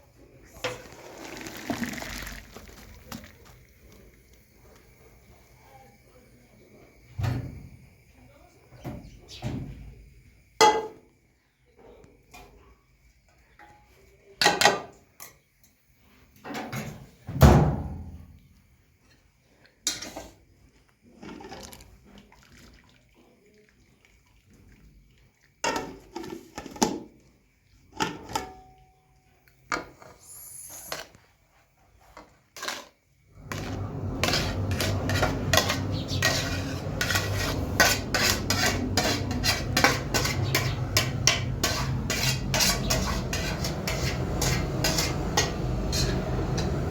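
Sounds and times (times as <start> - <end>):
metal pots and utensils clinking: 10.6 - 11.0, 19.9 - 20.4, 25.6 - 27.1, 27.9 - 28.7, 32.6 - 46.9
metal scraping and clattering: 33.4 - 46.9.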